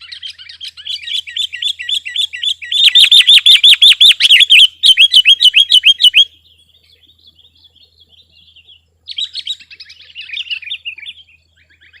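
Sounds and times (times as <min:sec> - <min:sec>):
faint bird twittering: 0:00.0 - 0:12.0
bulbul singing rapid notes: 0:01.5 - 0:06.3.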